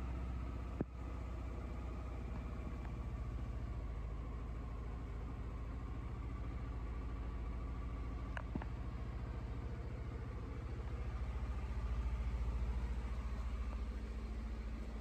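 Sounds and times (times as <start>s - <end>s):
scooter engine idling: 0.0s - 15.0s
faint clicks: 8.3s - 8.8s.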